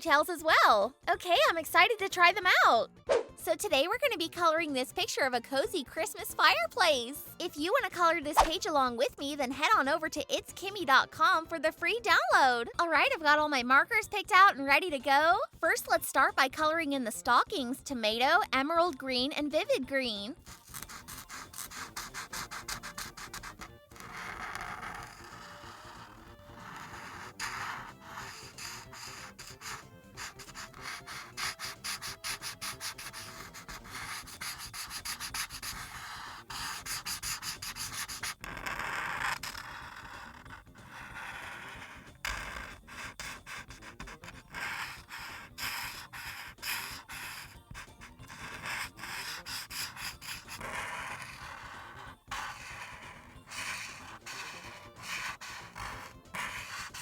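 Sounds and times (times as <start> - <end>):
marker scratching on paper: 6.3 - 11.4, 20.4 - 57.0.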